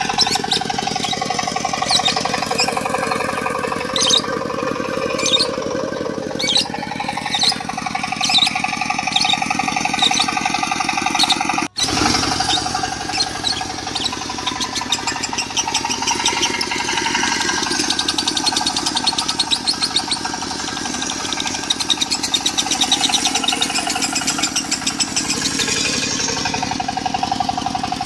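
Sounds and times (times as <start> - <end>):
lovebird chirping: 0.0 - 11.5, 12.4 - 16.8, 18.0 - 20.3
diesel engine running: 0.0 - 28.0.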